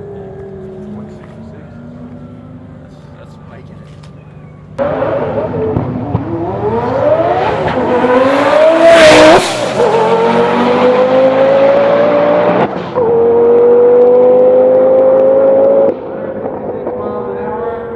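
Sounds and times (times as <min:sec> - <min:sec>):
race car engine at full throttle: 0:00.0 - 0:17.9.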